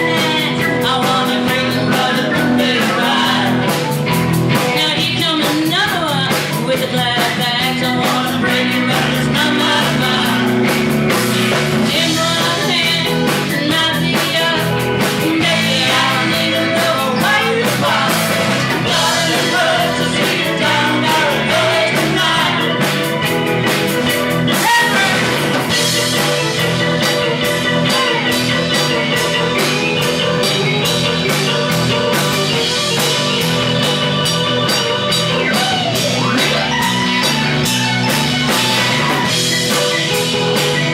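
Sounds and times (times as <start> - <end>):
person singing: 0.0 - 10.8, 11.8 - 23.1, 24.5 - 25.5, 27.7 - 31.0
live rock band playing: 0.0 - 40.9.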